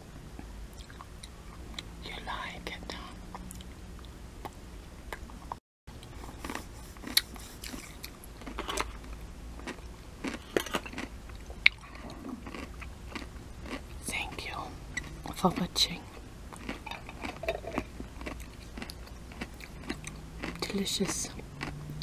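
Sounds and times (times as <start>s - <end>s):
crunchy pickle chewing: 6.0s - 22.0s.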